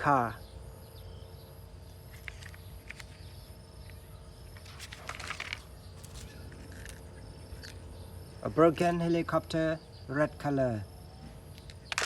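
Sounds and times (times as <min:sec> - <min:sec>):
insects chirping: 0:00.0 - 0:12.0
steady low hum: 0:00.0 - 0:12.0
rustling and small clicks: 0:02.1 - 0:03.2, 0:04.6 - 0:07.8.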